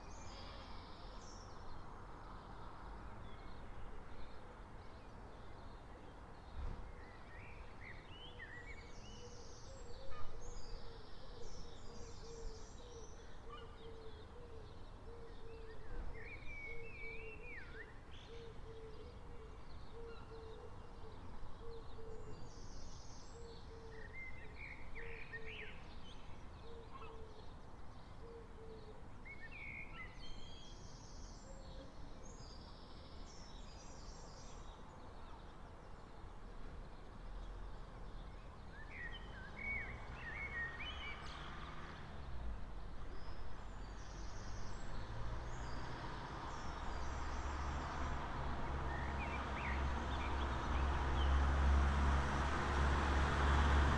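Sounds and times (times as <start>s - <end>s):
low traffic hum: 0.0s - 53.9s
vehicle approaching: 44.4s - 53.9s.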